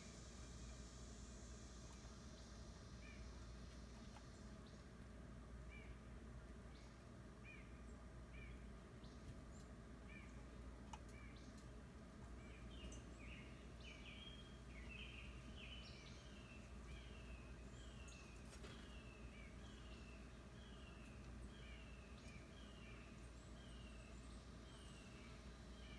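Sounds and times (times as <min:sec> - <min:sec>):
low steady hum: 0:00.0 - 0:25.9
faint bird chirps: 0:12.4 - 0:25.9.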